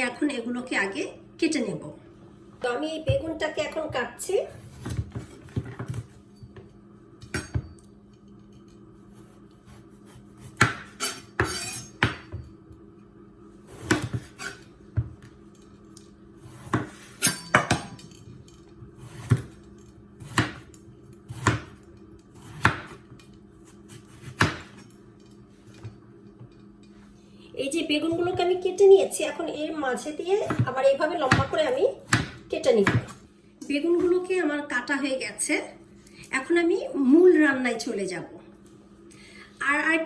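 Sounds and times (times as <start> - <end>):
knife striking cutting board: 10.4 - 12.4, 20.2 - 20.7, 21.3 - 21.8, 22.5 - 23.0, 24.2 - 24.8.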